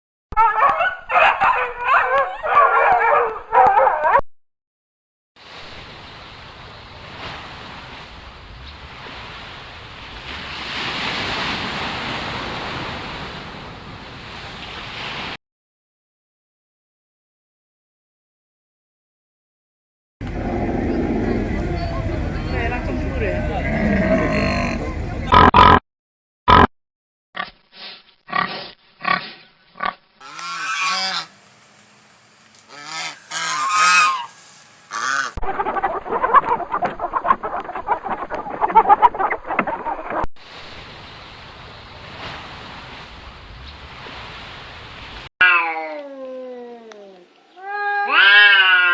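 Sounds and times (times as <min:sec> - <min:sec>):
geese honking: 0:00.4 - 0:04.2, 0:32.7 - 0:40.3.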